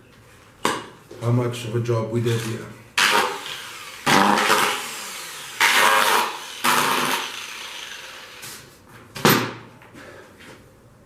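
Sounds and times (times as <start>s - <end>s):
angle grinder bursts: 2.3s - 8.5s.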